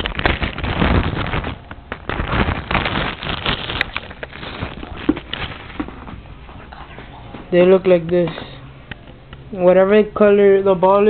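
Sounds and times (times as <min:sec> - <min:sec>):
packaging rustling and crinkling: 0:00.0 - 0:07.6.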